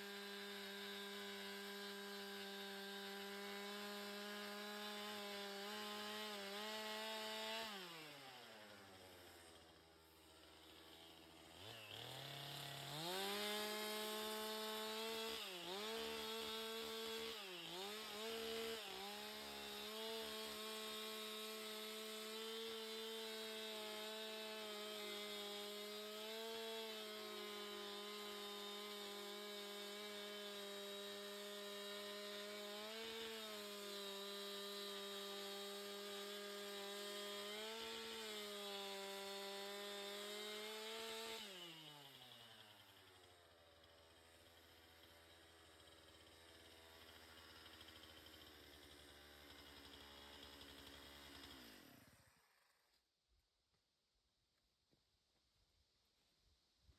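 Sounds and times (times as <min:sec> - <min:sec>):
chainsaw revving: 0:00.0 - 0:43.1, 0:44.1 - 0:52.8.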